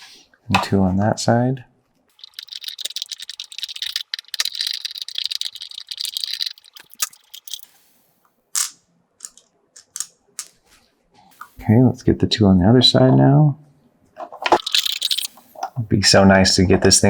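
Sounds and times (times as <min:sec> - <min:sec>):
screwdriver clicking and scraping: 0:02.1 - 0:07.7, 0:08.6 - 0:10.6, 0:14.2 - 0:15.8.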